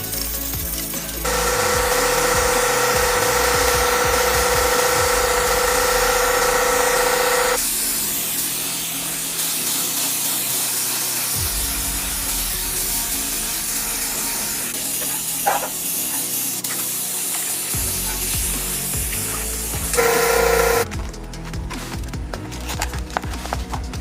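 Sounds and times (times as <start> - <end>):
steady spraying hiss: 0.0 - 20.0
pitched machine whine: 1.2 - 7.7, 20.0 - 20.9.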